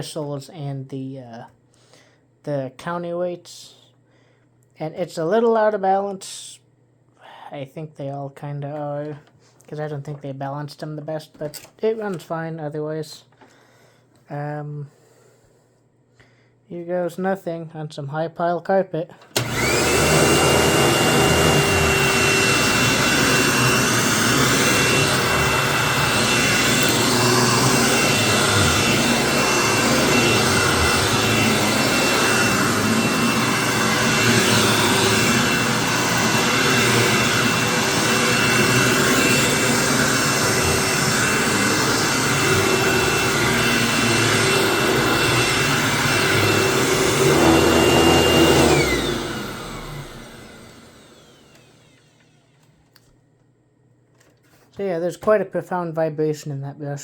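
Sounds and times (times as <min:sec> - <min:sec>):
vacuum cleaner motor whine: 0:19.3 - 0:52.8
brush roll vibration: 0:19.4 - 0:51.6.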